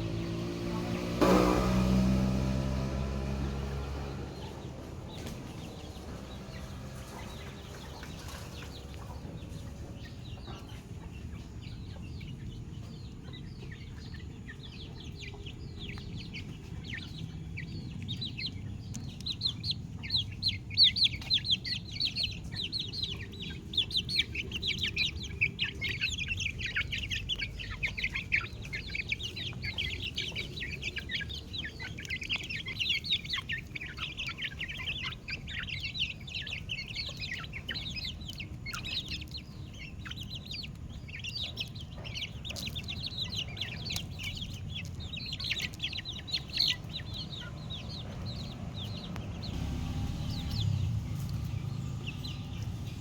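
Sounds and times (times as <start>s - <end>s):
chicks peeping: 0.0s - 53.0s
low steady rumble: 15.4s - 53.0s.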